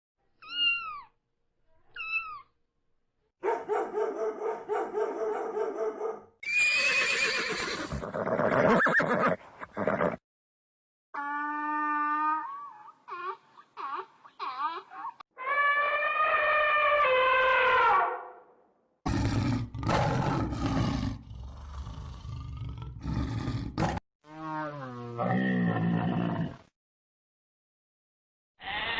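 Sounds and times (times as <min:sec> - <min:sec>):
horse whinny: 0:06.4 - 0:10.2
animal crying: 0:11.2 - 0:18.0
animal calls falling in pitch: 0:15.4 - 0:18.2.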